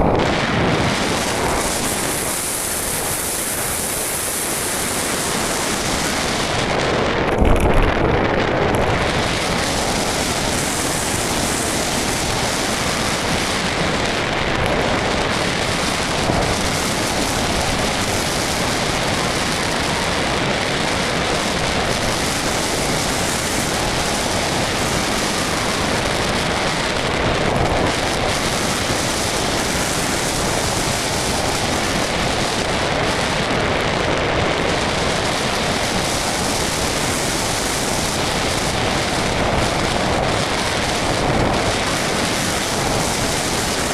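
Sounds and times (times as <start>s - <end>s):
wind noise on microphone: 0.0s - 43.9s.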